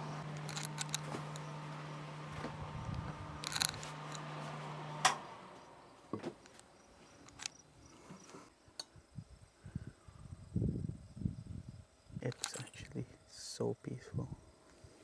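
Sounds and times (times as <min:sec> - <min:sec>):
steady appliance hum: 0:00.0 - 0:13.3
clicks and clatter of handling: 0:00.4 - 0:01.5, 0:03.4 - 0:04.3, 0:07.2 - 0:07.6, 0:12.3 - 0:12.9.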